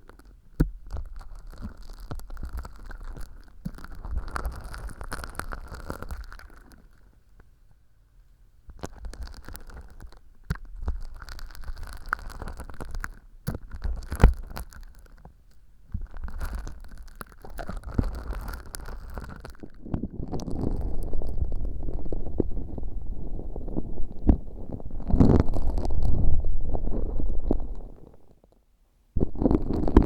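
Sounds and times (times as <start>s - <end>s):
sticky slime crackling and squelching: 0.8s - 7.0s, 8.8s - 15.2s, 15.9s - 28.1s, 29.2s - 30.0s.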